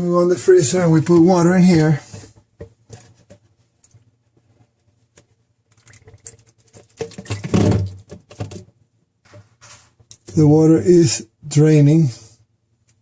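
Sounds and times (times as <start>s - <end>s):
water pouring and splashing: 5.7s - 8.0s.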